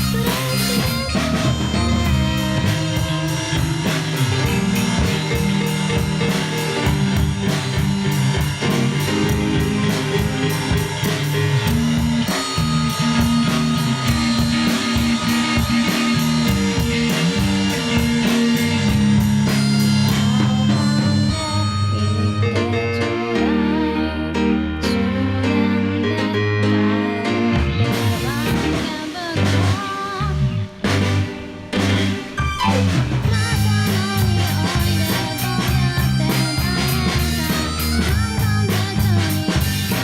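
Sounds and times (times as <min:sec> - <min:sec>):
cymbals keeping quick beat: 0:00.0 - 0:22.2
band playing: 0:00.0 - 0:40.0.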